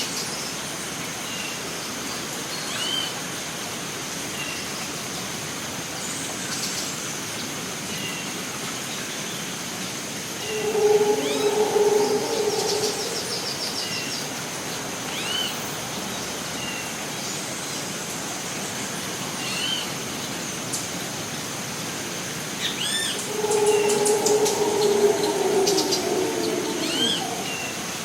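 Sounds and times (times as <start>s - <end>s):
steady hiss: 10.1s - 17.1s, 21.9s - 28.0s
low hooting call: 10.3s - 14.4s, 22.9s - 28.0s
high insect drone: 10.4s - 14.0s, 23.1s - 28.0s
birds chirping and whistling: 10.4s - 14.1s, 22.9s - 28.0s.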